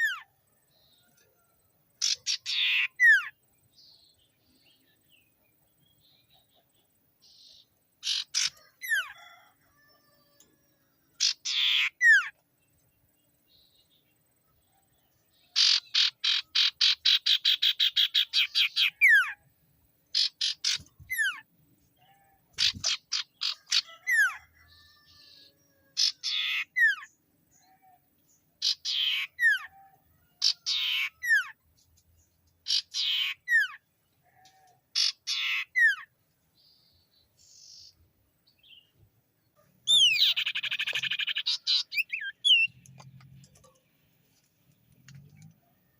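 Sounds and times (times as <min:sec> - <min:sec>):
bird harsh rasping calls: 0:02.0 - 0:03.3, 0:08.0 - 0:09.3, 0:11.2 - 0:12.3, 0:15.6 - 0:19.4, 0:20.1 - 0:21.4, 0:22.6 - 0:24.5, 0:26.0 - 0:27.2, 0:28.6 - 0:29.7, 0:30.4 - 0:31.6, 0:32.6 - 0:33.8, 0:34.9 - 0:36.1, 0:39.8 - 0:42.9.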